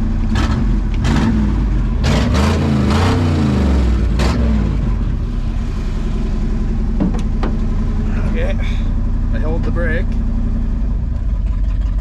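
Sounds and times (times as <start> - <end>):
truck engine idling: 4.0 - 12.0.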